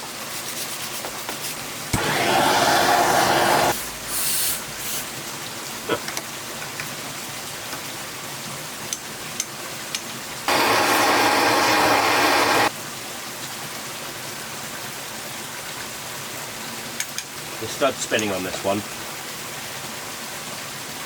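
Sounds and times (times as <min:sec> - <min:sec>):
loud hiss: 0:01.9 - 0:05.1, 0:10.5 - 0:12.7
running water: 0:17.4 - 0:20.4.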